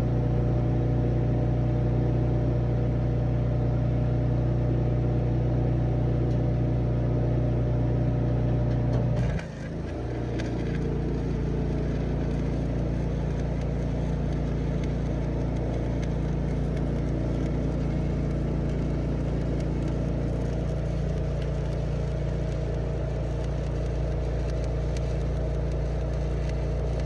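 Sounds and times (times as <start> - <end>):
welding rig engine running: 7.5 - 27.0.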